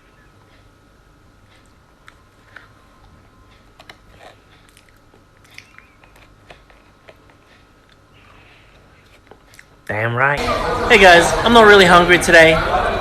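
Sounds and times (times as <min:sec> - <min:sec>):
person chewing food: 0:00.1 - 0:09.9.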